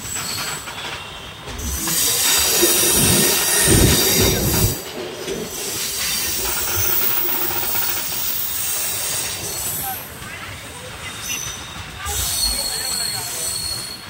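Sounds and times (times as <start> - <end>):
train rumbling: 0.0 - 14.0
train wheels squealing on rails: 0.0 - 14.0
heavy low thuds: 2.8 - 4.8.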